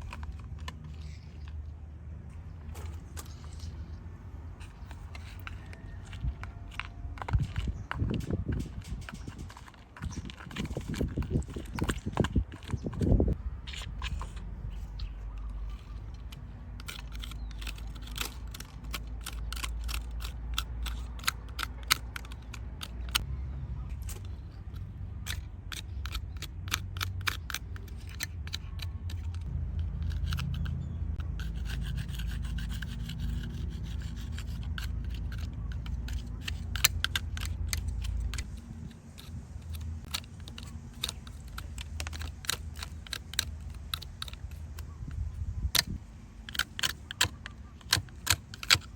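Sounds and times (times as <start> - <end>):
low steady rumble: 0.0 - 48.9
scrubbing on toy car: 2.7 - 23.2, 23.9 - 48.9
sharp little clicks and taps: 32.6 - 48.9.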